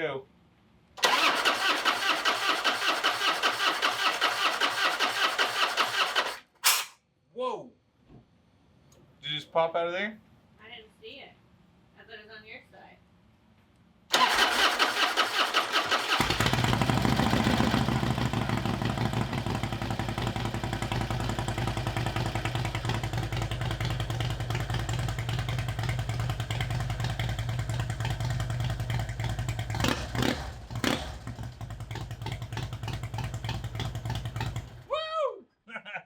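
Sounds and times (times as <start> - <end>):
motorcycle engine starting and running: 1.0 - 6.5, 14.1 - 34.9.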